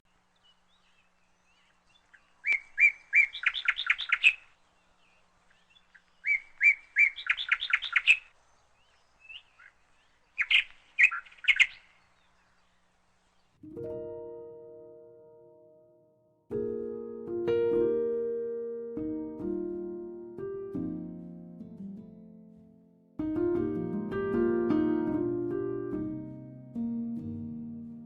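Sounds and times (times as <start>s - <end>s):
songbird singing: 0.0s - 13.6s.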